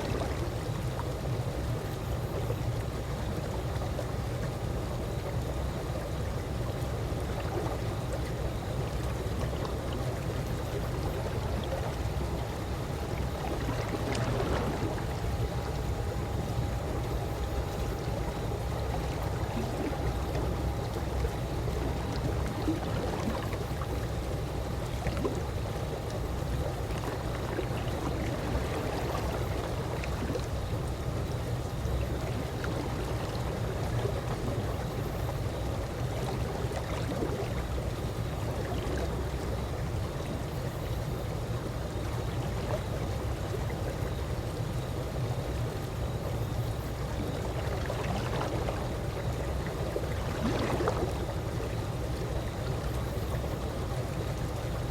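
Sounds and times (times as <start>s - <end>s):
constant low rumble: 0.0s - 54.9s
pool water trickling: 0.0s - 54.9s.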